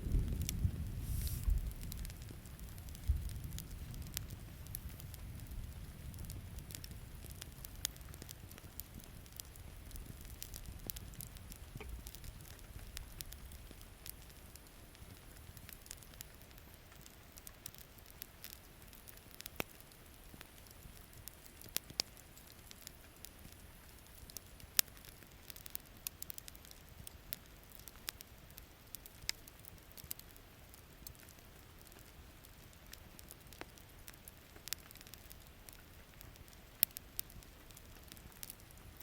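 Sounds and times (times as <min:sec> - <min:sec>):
low rumble: 0:00.0 - 0:07.2
rain hissing: 0:00.0 - 0:16.0
campfire wood crackling: 0:00.0 - 0:39.0.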